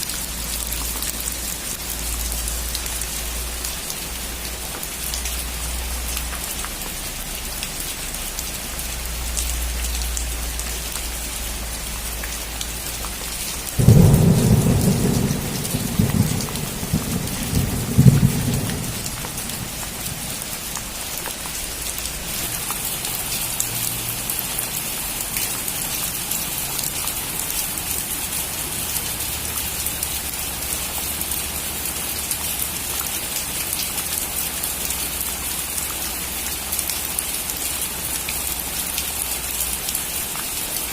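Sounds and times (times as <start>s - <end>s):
rain falling on a roof: 0.0s - 40.9s
thunder rumbling: 13.7s - 21.0s.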